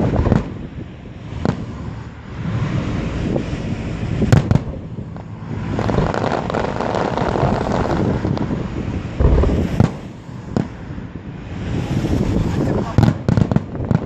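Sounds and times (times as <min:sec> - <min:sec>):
rumble of distant bursts: 0:05.0 - 0:11.6
fireworks bangs: 0:05.7 - 0:11.0.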